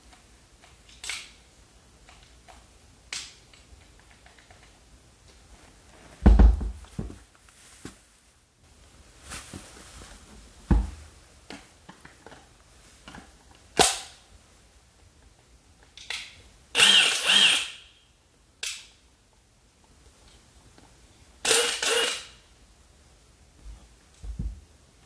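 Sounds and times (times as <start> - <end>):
impact wrench spinning: 16.8 - 17.8, 21.4 - 22.4.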